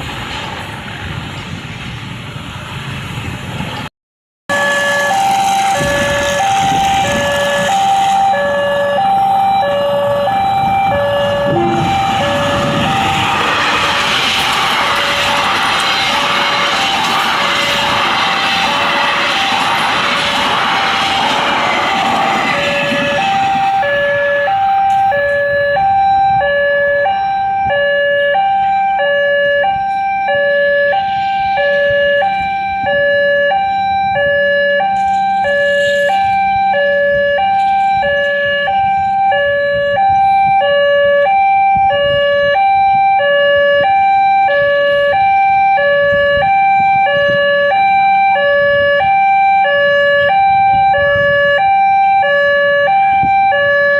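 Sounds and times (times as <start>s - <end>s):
broad rush of noise: 0.0s - 3.9s, 4.5s - 40.6s
level crossing two-tone alarm: 4.5s - 53.9s.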